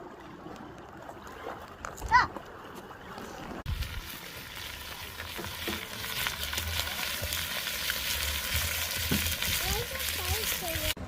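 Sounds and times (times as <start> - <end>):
crackling sizzle with pops: 3.7 - 11.0.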